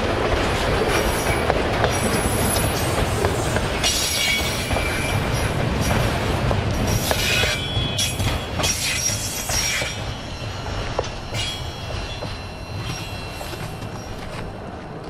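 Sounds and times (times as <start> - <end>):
high thin wheel squeal: 7.1 - 14.3.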